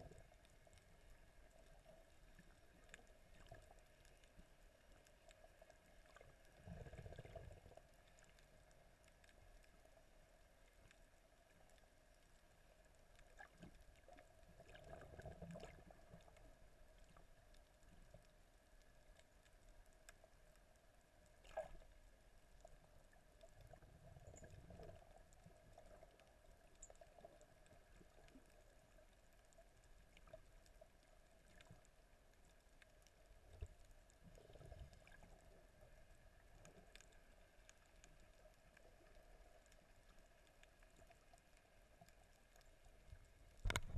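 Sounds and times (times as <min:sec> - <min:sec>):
water movement swells: 0:00.0 - 0:43.9
muffled underwater hum: 0:41.7 - 0:43.9.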